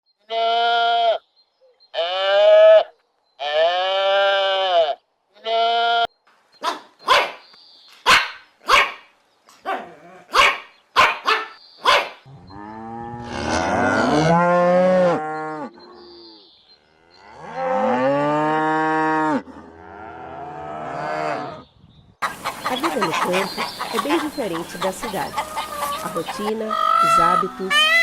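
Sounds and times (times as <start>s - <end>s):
long steady bleats: 0.2s - 1.2s, 1.9s - 6.1s, 22.7s - 28.0s
dog barking: 6.6s - 7.4s, 8.1s - 12.2s.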